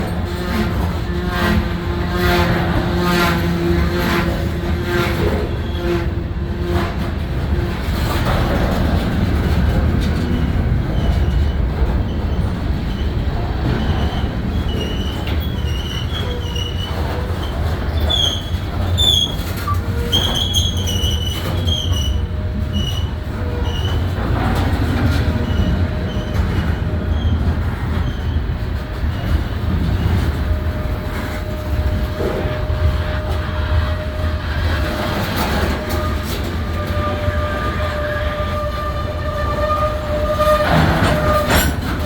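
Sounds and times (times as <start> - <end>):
freight train rumbling: 0.0 - 42.0
high-pitched wheel squeals: 13.8 - 24.6, 35.4 - 42.0.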